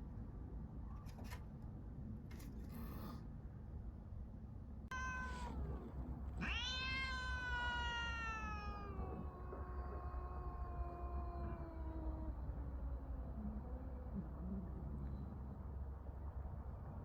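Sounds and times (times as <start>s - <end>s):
second cat yowling lower: 4.9s - 15.2s
cat yowling: 4.9s - 15.4s.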